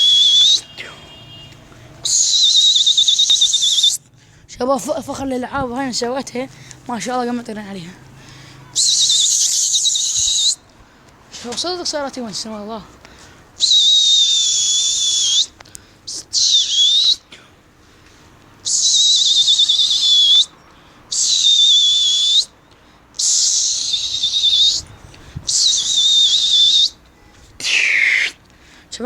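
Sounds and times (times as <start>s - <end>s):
person blowing loud whistle blasts: 0.0s - 4.0s, 25.5s - 27.0s.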